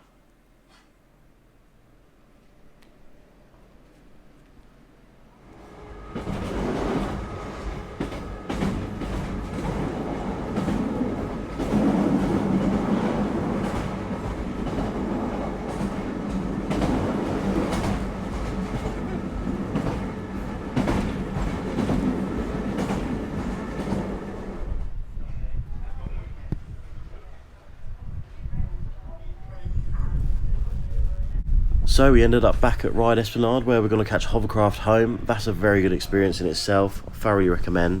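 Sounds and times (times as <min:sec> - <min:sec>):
train wheels clicking over rail joints: 0:06.2 - 0:24.6.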